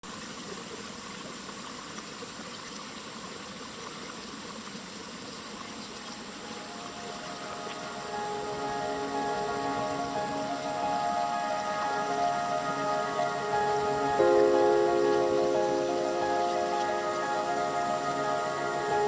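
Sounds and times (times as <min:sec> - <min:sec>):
steady outdoor hiss: 0:00.0 - 0:19.0
music: 0:06.2 - 0:19.0.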